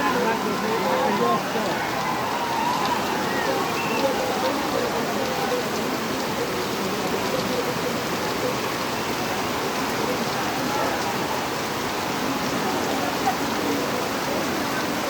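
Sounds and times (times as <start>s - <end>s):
distant voices calling: 0.0s - 6.3s
steady rain falling: 0.0s - 15.0s.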